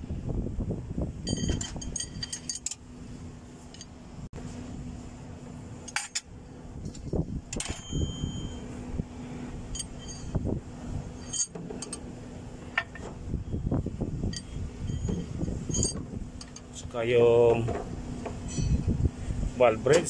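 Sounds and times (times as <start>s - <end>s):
steady low hum: 0.0s - 20.0s
metal rods clinking: 1.2s - 2.8s, 9.7s - 10.5s, 11.2s - 12.0s, 14.2s - 16.8s, 18.3s - 18.9s.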